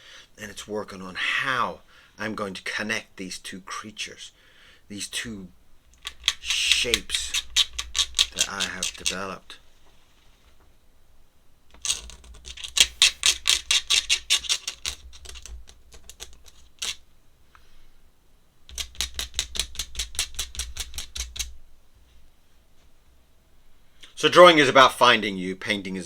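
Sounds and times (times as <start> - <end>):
drawing tool clicking rapidly: 6.0 - 9.2.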